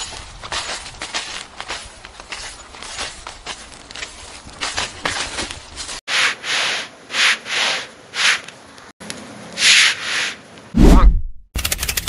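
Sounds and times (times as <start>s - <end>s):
broom sweeping gritty ground: 0.0s - 8.9s, 9.5s - 10.7s.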